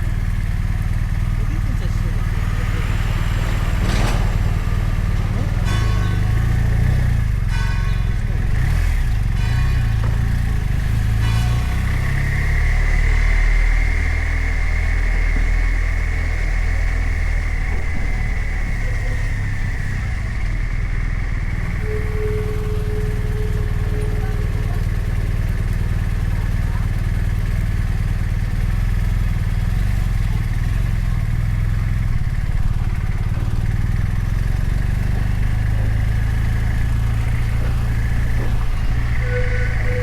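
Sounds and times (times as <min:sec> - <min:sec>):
motorcycle engine idling: 0:00.0 - 0:40.0
short steady tone: 0:02.3 - 0:26.6, 0:33.9 - 0:40.0.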